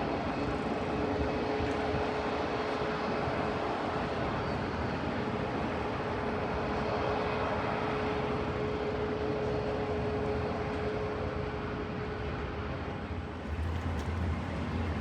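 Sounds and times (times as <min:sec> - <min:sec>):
jet engine rushing: 0:13.1 - 0:15.0
steady engine tone: 0:13.1 - 0:15.0.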